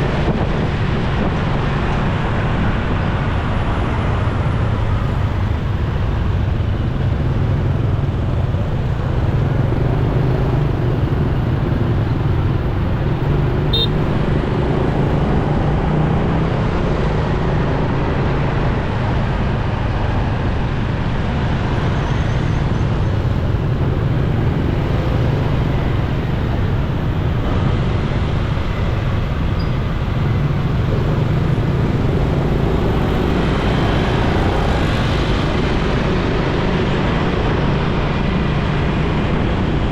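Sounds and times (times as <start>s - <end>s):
road and traffic noise: 0.0s - 39.9s
motorcycle engine hum: 0.1s - 17.0s, 22.6s - 39.9s.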